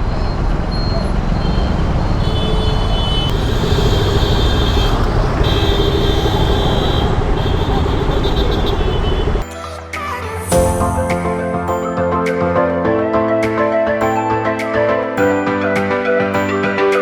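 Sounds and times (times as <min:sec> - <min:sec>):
wind rumble: 0:00.0 - 0:09.4
road and traffic noise: 0:00.0 - 0:09.5
background music: 0:09.4 - 0:17.0.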